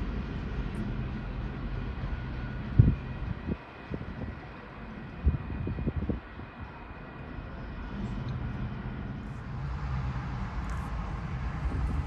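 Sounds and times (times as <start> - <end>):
freight cars rumbling past: 7.8 - 12.0.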